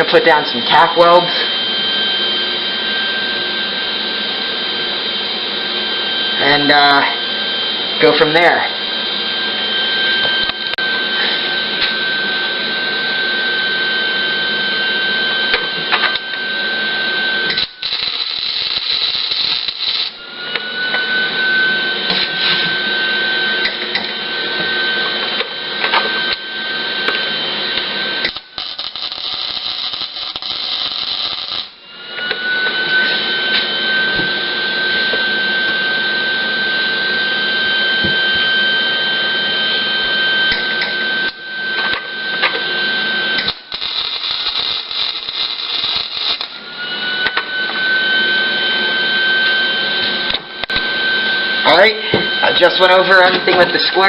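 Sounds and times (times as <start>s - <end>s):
wire feed whine: 0.0s - 54.0s
welding arc crackling: 17.4s - 22.8s, 28.2s - 31.8s, 43.4s - 46.7s.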